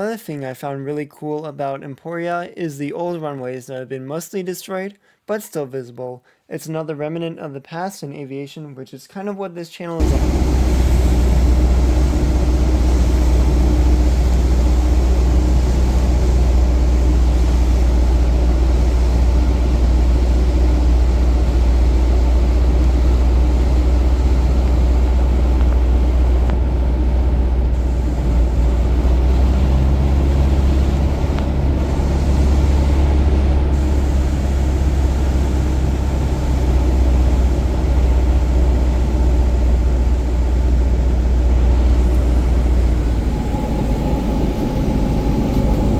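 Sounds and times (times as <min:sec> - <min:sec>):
propeller plane engine drone: 0:10.0 - 0:45.9.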